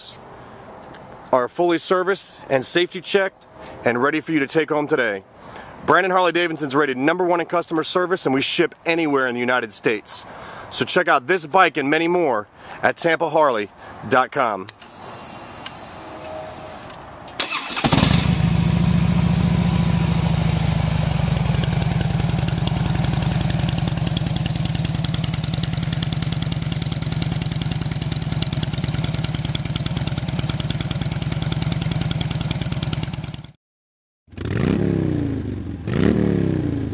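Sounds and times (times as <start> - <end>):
motorcycle engine starting and idling: 17.4 - 33.6, 34.3 - 36.9
motorcycle engine revving: 17.6 - 33.6, 34.3 - 36.9.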